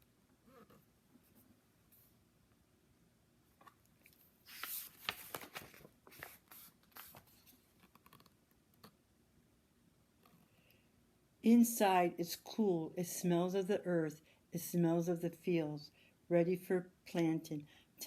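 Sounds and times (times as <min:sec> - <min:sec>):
paper pages rustling: 0:03.6 - 0:08.4.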